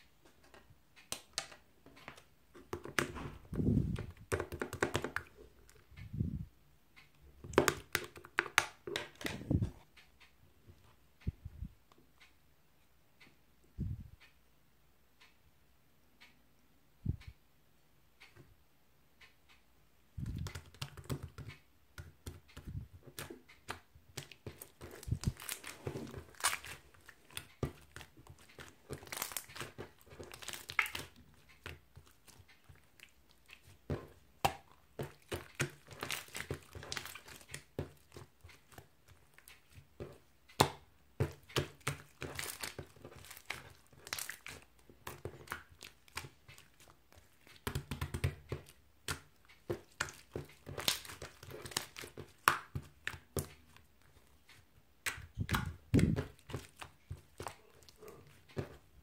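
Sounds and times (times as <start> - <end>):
small taps and clicks: 0.2 - 6.3, 20.2 - 59.0.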